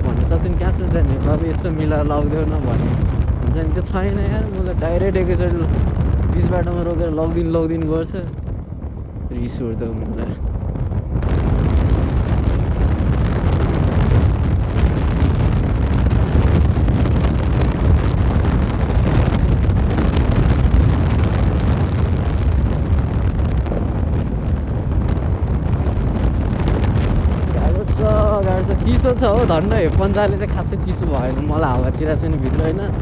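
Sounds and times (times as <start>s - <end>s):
road noise: 0.0s - 33.0s
wind rumble on microphone: 0.0s - 33.0s
motorcycle engine running: 10.6s - 28.5s.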